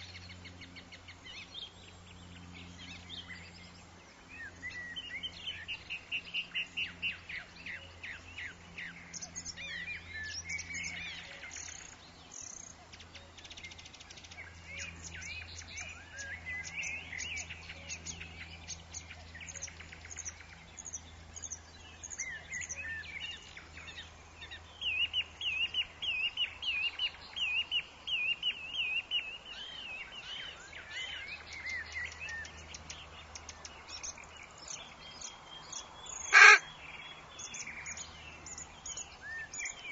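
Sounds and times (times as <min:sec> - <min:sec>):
birds calling and chirping: 0:00.0 - 0:39.9
bird trill: 0:36.1 - 0:36.7
bird warbling: 0:36.3 - 0:36.7.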